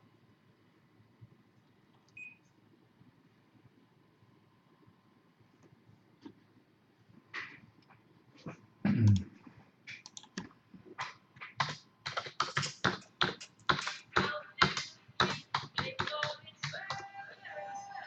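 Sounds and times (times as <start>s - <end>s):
typing on computer keyboard: 9.9s - 17.1s.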